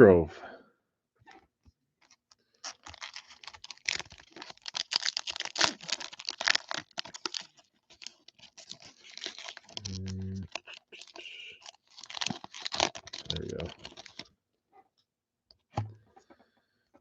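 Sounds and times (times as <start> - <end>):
card pack wrapper crinkling: 2.0 - 14.3.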